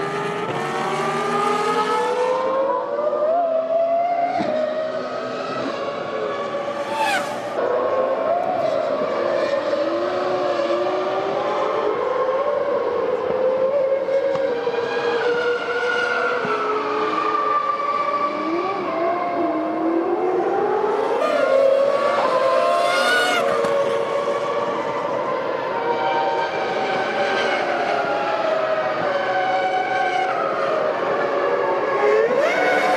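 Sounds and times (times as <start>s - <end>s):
racing car engines at high revs: 0.0s - 32.9s
racing car passing close: 4.3s - 11.6s.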